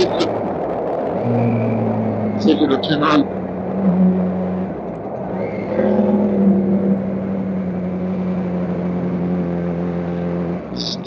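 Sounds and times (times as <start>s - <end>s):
road and wind noise: 0.0s - 11.0s
motorcycle engine running: 5.7s - 11.0s.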